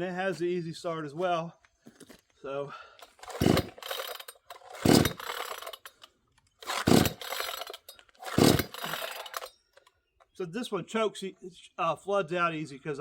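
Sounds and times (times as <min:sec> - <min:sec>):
chainsaw recoil starter pulls: 0:03.0 - 0:09.5.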